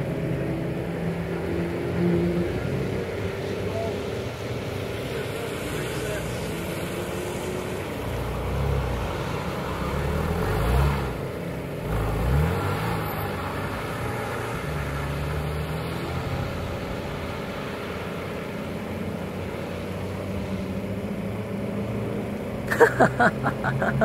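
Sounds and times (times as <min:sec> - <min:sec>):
car engine revving hard: 0:05.7 - 0:17.4.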